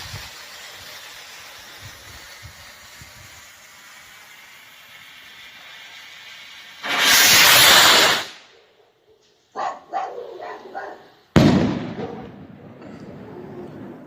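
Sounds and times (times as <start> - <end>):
firework rocket whoosh: 0.0 - 8.5
dog barking: 8.8 - 11.2, 12.0 - 12.3
firework shell bang: 11.4 - 13.0.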